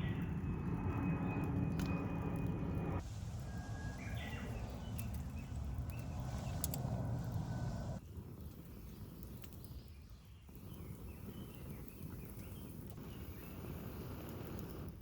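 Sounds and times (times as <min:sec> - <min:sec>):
steady low rumble: 0:00.0 - 0:08.4
distant bird chirps: 0:03.5 - 0:06.6.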